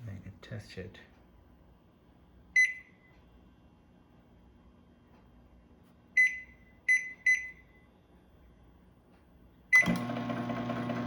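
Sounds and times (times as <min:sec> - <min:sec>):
microwave keypad beeps: 0:02.6 - 0:03.1, 0:06.2 - 0:07.7, 0:09.7 - 0:10.2
microwave humming: 0:08.7 - 0:11.0.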